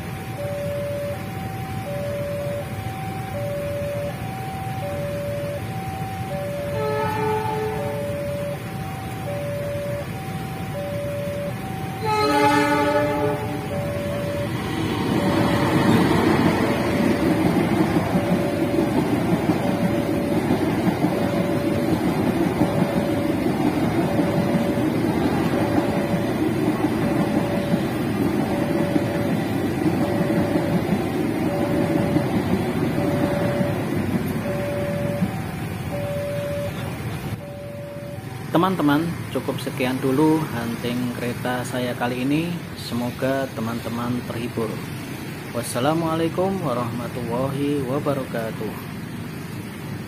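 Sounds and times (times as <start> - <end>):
crossing warning bell chiming: 0.0 - 50.0
passenger train rumbling past: 0.0 - 50.0
train horn: 6.5 - 8.2, 11.8 - 13.8.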